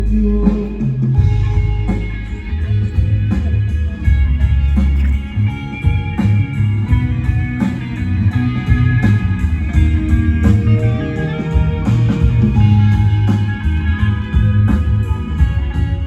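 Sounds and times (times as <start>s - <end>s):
electric guitar: 0.0s - 16.0s
live band through pa: 0.0s - 16.0s.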